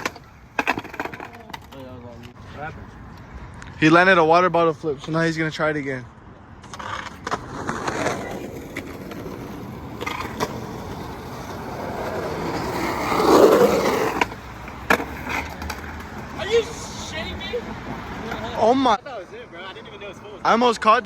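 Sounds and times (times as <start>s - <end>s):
skateboard clacks: 0.0s - 2.4s, 6.6s - 18.6s
skateboard rolling over concrete: 0.0s - 2.6s, 6.5s - 19.0s.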